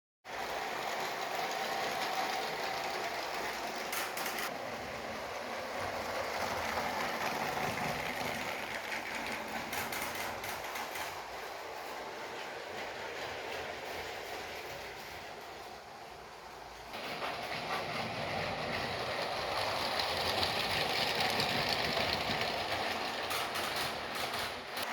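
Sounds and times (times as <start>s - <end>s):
toy train wheels rattling and clicking: 0.6s - 4.6s, 5.7s - 12.0s, 16.9s - 24.9s.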